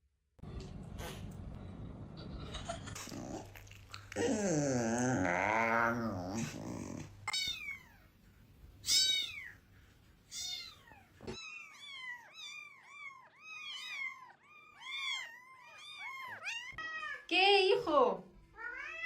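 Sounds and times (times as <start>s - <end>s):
cat meowing: 7.3s - 8.1s, 8.8s - 9.6s, 10.3s - 17.3s, 18.6s - 19.0s.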